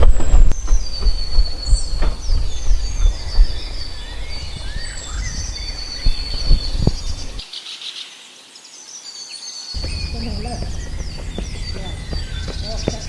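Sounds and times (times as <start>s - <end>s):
low rumble: 0.0s - 7.4s
birds chirping and whistling: 0.0s - 8.1s, 8.9s - 13.0s
insects buzzing: 0.0s - 13.0s.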